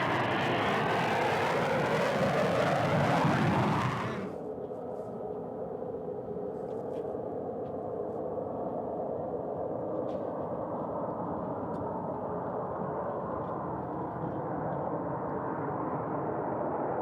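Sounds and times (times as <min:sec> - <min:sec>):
jet engines rumbling: 0:00.0 - 0:04.4.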